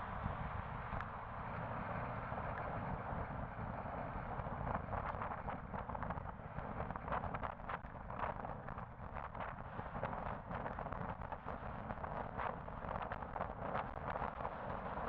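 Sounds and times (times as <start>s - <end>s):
wind on microphone: 0.0s - 1.1s, 1.7s - 15.0s
traffic rumble: 0.0s - 15.0s.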